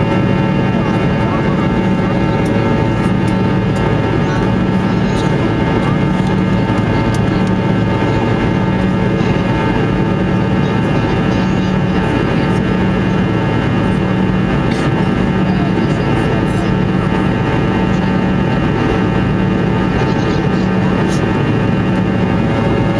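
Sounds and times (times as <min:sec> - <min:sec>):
jet engine cabin noise: 0:00.0 - 0:22.9
low hum: 0:00.0 - 0:22.9.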